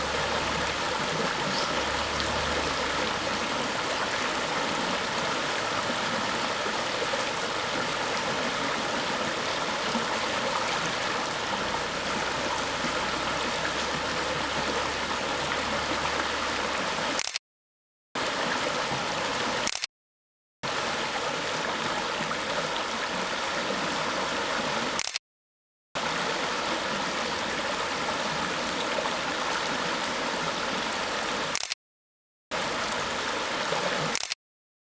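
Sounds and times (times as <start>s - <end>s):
river water flowing and gurgling: 0.0s - 17.2s, 18.2s - 19.7s, 20.6s - 25.0s, 26.0s - 31.6s, 32.5s - 34.3s.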